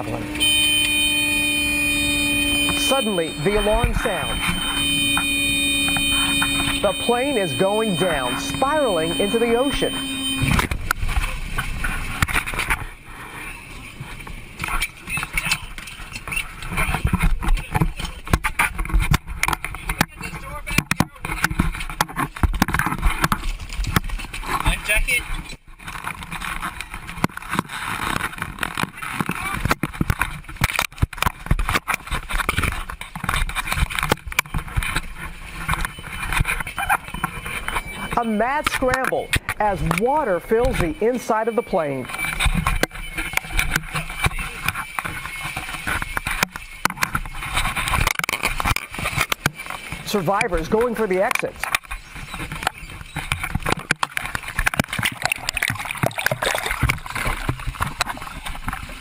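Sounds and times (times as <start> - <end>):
knocks and scrapes: 2.6 - 59.0
water rushing and sloshing: 52.2 - 59.0.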